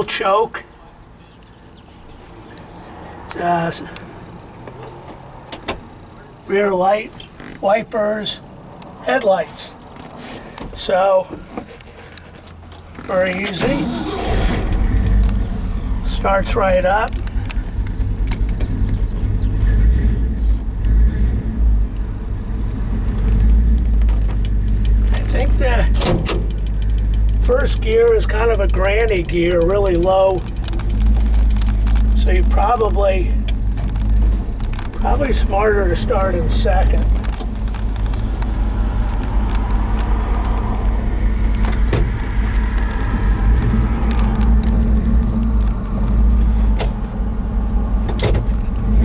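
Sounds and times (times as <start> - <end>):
truck engine low rumble: 0.0 - 49.0
short rattles: 23.2 - 43.2.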